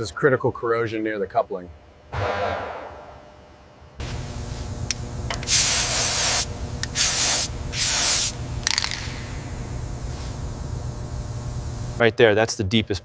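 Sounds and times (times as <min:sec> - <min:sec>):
steady low hum: 0:00.0 - 0:12.3
spraying bursts: 0:05.3 - 0:10.4.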